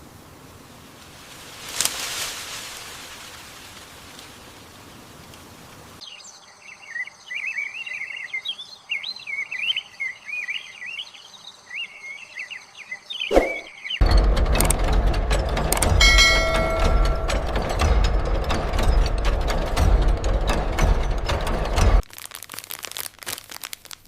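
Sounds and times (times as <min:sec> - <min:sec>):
birds chirping and warbling: 0:04.7 - 0:14.2
machinery rumbling and clicking: 0:14.0 - 0:22.0.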